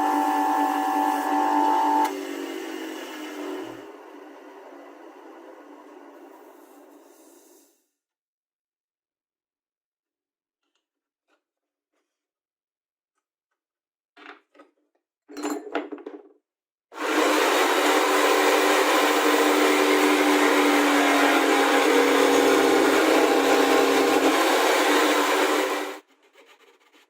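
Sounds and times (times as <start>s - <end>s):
electric power tool running: 0.0s - 6.4s, 17.0s - 26.0s.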